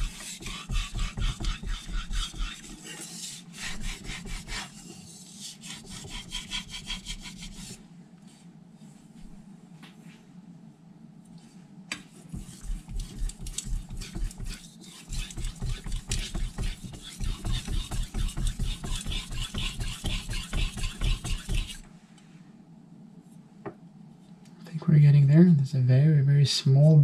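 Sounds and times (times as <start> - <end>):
knife scraping on whetstone: 0.0 - 7.7, 12.3 - 21.9.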